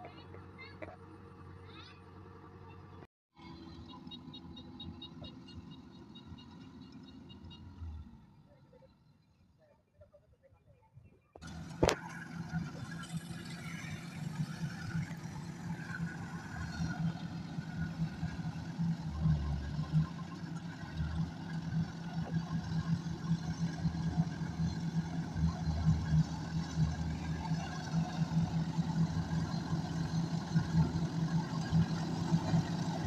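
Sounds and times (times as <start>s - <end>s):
diesel engine running: 11.4s - 33.0s.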